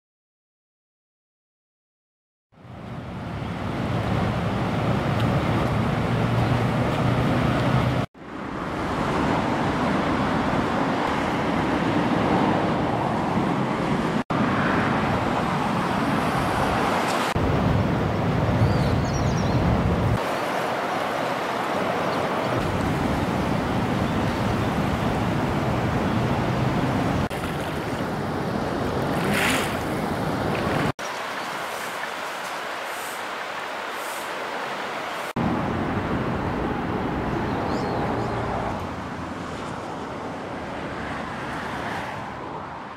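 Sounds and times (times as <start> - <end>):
river rushing: 2.6 - 42.5
wind buffeting microphone: 14.9 - 31.0.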